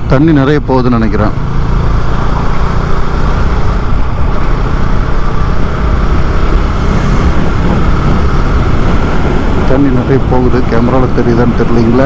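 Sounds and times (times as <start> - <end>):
motorcycle engine drone: 0.0 - 12.0
wind rush on microphone: 2.5 - 12.0.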